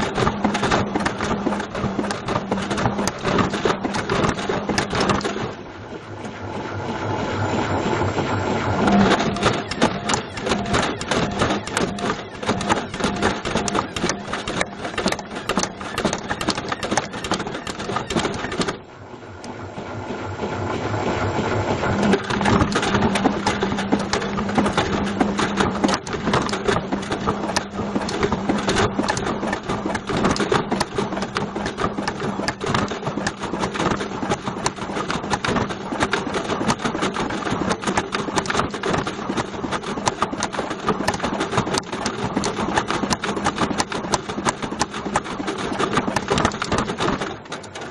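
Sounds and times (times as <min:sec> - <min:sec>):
washing machine motor hum: 0:00.0 - 0:47.9
object clattering in washing machine drum: 0:22.0 - 0:47.9.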